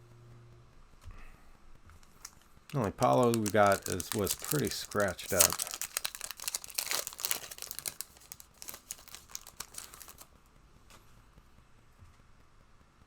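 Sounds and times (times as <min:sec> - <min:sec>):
card wrappers rustling and crinkling: 0:02.2 - 0:10.3.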